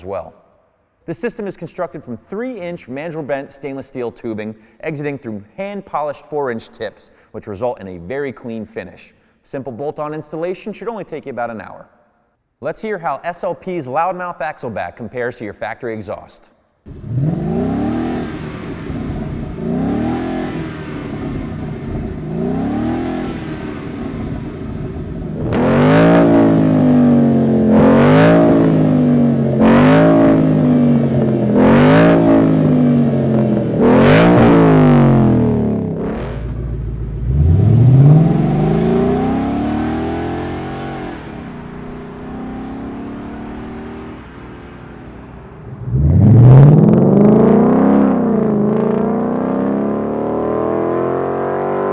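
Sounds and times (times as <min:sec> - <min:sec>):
engine burbling idle: 0:16.9 - 0:27.8, 0:28.5 - 0:46.8
car engine revving: 0:16.9 - 0:51.9.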